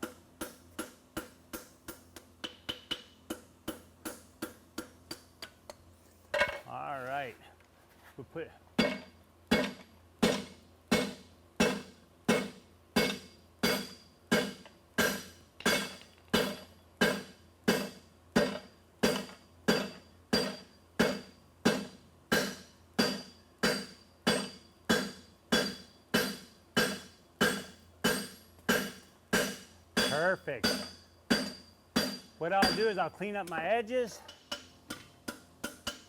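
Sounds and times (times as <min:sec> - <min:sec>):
hammer on hot steel ringing: 0:08.8 - 0:33.4, 0:34.2 - 0:36.0.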